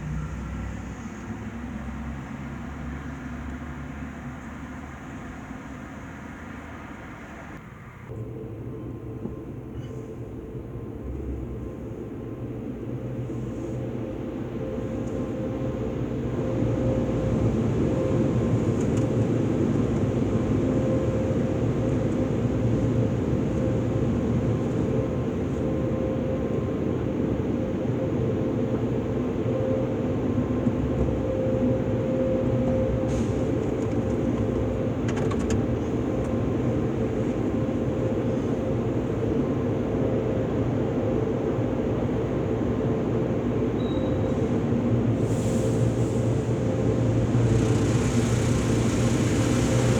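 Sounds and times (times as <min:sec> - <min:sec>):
car wash machinery rumbling: 0:45.1 - 0:49.9.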